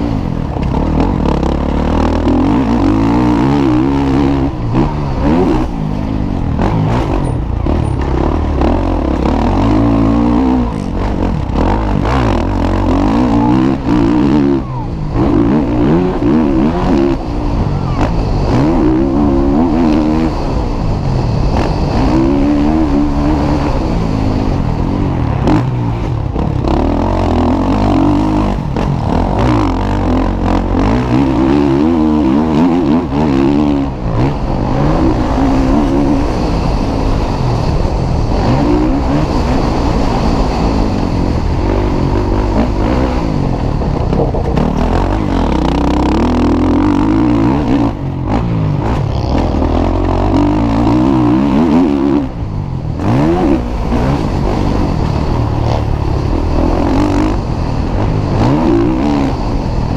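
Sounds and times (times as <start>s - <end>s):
motocross bike engines revving: 0.0s - 59.9s.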